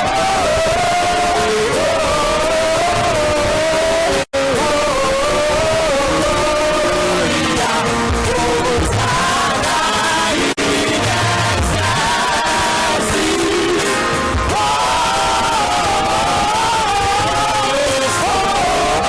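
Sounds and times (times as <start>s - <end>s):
gospel choir singing: 0.0s - 19.0s
live band accompaniment: 6.2s - 19.0s.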